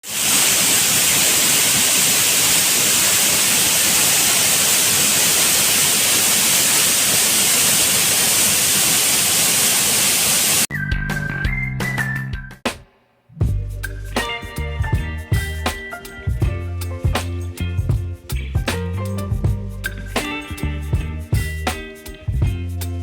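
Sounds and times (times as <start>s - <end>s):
waterfall rushing: 0.0s - 10.7s.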